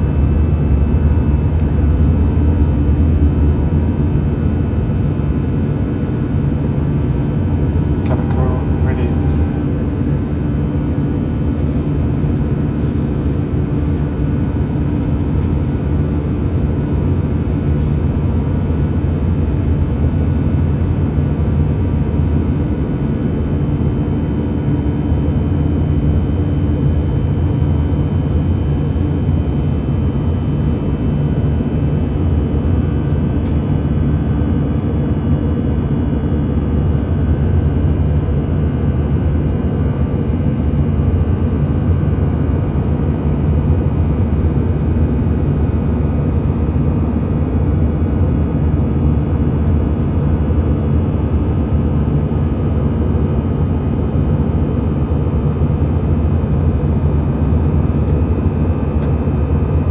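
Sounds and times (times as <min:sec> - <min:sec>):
jet engines running: 0:00.0 - 0:19.8
faint steady tones: 0:08.0 - 0:10.5.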